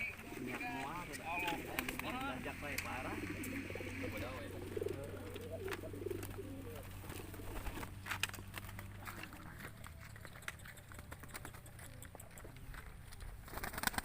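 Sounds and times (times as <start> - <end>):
low hum: 0.0 - 10.0
pigeons cooing: 0.0 - 14.0.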